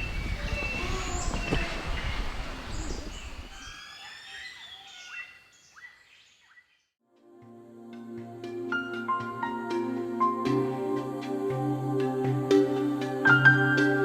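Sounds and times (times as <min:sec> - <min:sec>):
birds chirping and whistling: 0:00.0 - 0:06.8.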